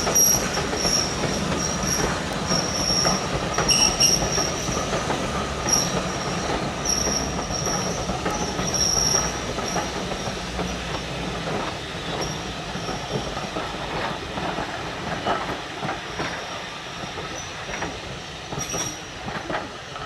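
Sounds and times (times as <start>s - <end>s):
high wheel squeal: 0.0s - 4.8s, 5.6s - 10.0s
train rolling on rails: 0.0s - 20.0s
wheels clicking over rail joints: 0.0s - 20.0s.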